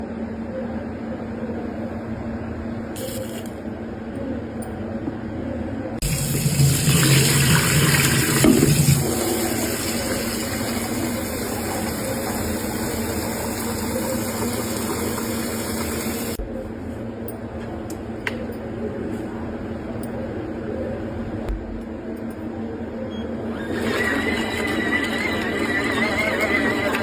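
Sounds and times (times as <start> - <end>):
small motor humming: 23.5 - 27.0.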